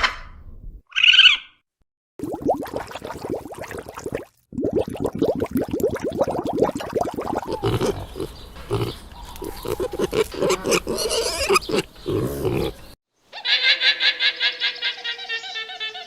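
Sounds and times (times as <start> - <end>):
pig grunting: 7.3 - 13.0
long quavering bleat: 9.6 - 12.8.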